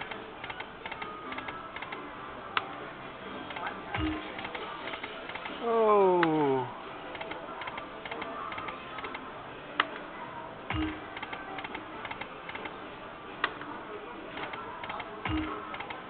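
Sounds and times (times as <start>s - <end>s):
casino background noise: 0.0s - 16.0s
slot machine ticks and clicks: 3.5s - 5.5s, 10.7s - 12.8s, 14.4s - 16.0s.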